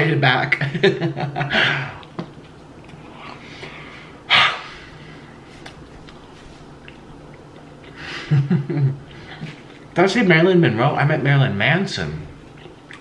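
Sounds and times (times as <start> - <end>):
man chewing: 1.6 - 10.0, 12.3 - 13.0
wet mouth clicks: 12.5 - 13.0.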